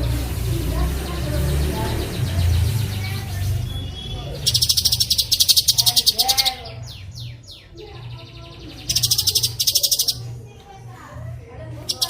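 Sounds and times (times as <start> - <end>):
songbird trilling and whistling: 1.1 - 10.3.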